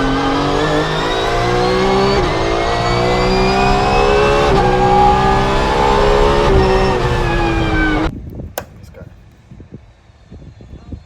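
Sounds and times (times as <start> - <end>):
race car engine shifting gears: 0.0 - 8.8.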